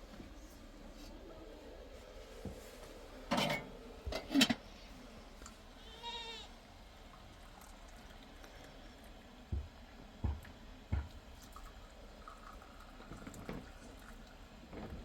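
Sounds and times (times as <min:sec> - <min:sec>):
livestock bleating: 0:05.8 - 0:06.5.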